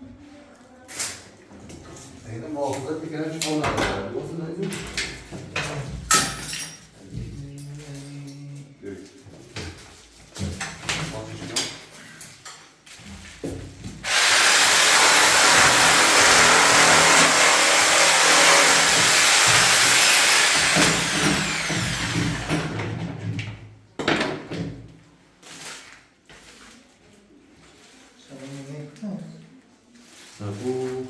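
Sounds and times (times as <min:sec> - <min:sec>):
electric power tool running: 0:14.0 - 0:22.8.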